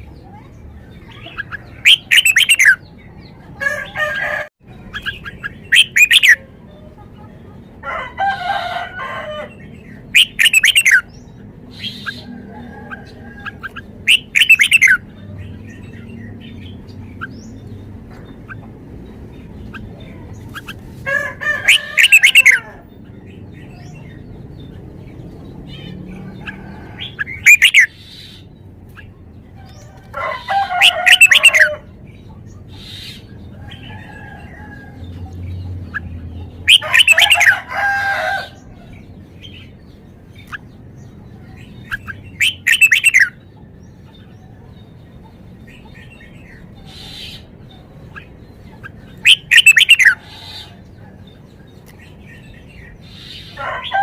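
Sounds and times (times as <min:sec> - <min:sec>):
bird singing: 0:00.0 - 0:54.0.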